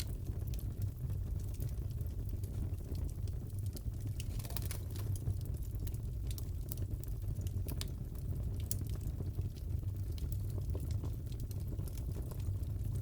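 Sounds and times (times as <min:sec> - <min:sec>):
low fire rumble: 0:00.0 - 0:13.0
wood fire crackling: 0:00.0 - 0:13.0.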